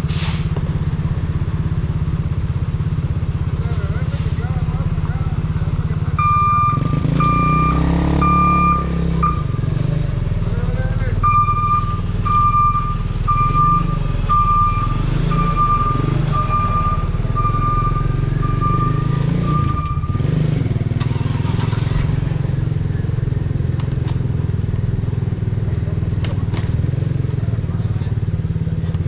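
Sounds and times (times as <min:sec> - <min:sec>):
motorcycle engine and exhaust: 0:00.0 - 0:29.0
high beep: 0:06.2 - 0:09.6, 0:11.2 - 0:20.2.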